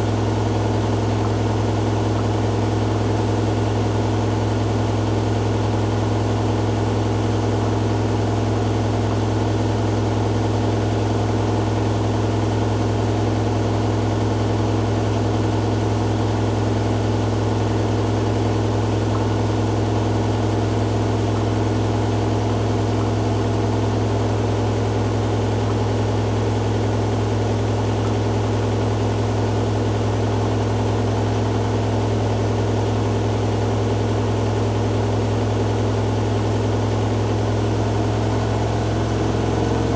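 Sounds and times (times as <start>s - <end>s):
washing machine spinning: 17.0s - 39.9s.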